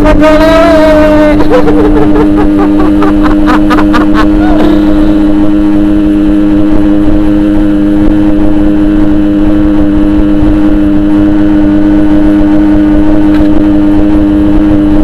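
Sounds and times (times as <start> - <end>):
two-stroke motorcycle engine: 0.0 - 15.0.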